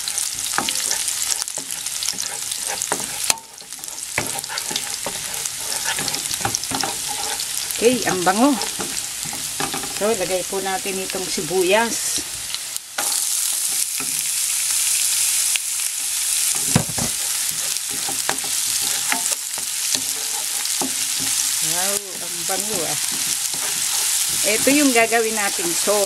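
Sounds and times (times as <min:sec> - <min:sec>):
wooden spatula scraping a pan: 0:00.0 - 0:11.0, 0:16.4 - 0:26.0
onion sizzling in oil: 0:00.0 - 0:26.0
knock: 0:16.6 - 0:17.2.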